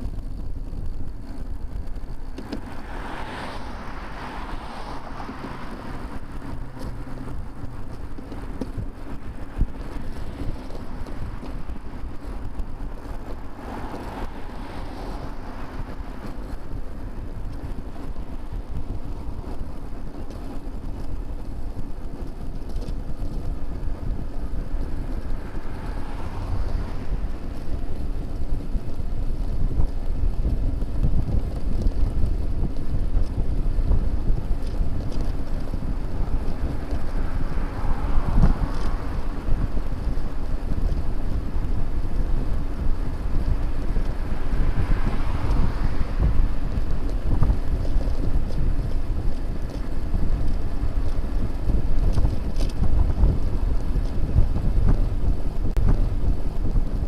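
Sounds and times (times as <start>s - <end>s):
traffic passing: 0.0s - 57.0s
wind rumbling on microphone: 0.0s - 57.0s.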